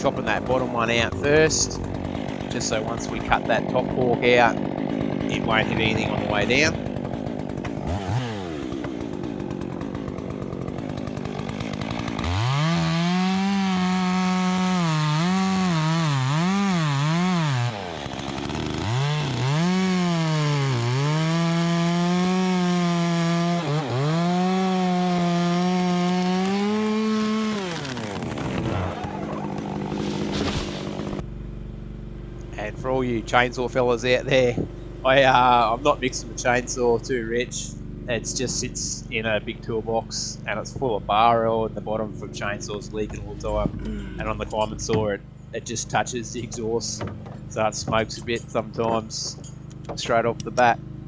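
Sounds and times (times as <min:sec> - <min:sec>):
chainsaw cutting branch: 0:00.0 - 0:31.2.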